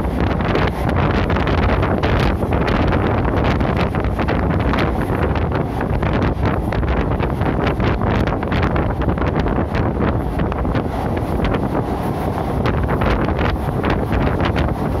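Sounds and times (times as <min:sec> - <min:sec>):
train running noise: 0:00.0 - 0:15.0
wheels clattering on track: 0:00.0 - 0:15.0
wind buffeting microphone: 0:00.0 - 0:15.0.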